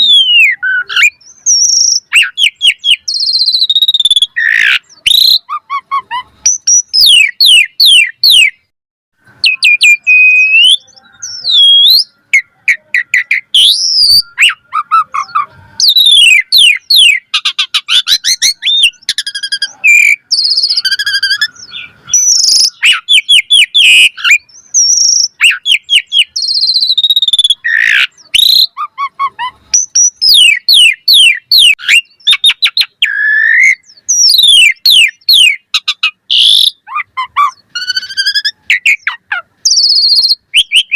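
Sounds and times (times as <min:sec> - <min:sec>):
starling singing: 0:00.0 - 0:40.9.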